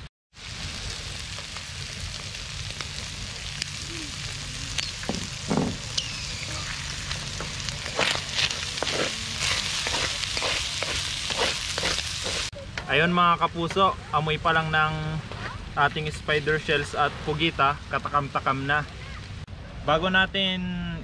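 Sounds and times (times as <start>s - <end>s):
seafood sizzling in hot oil: 0.3s - 12.5s
spatula scraping a pan: 7.8s - 12.5s.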